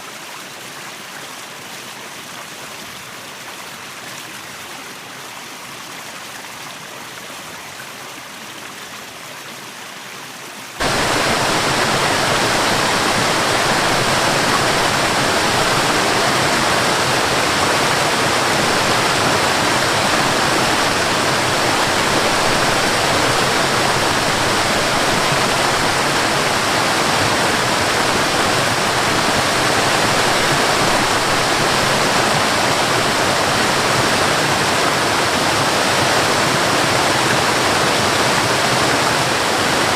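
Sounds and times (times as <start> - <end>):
waterfall rushing: 10.8 - 39.9.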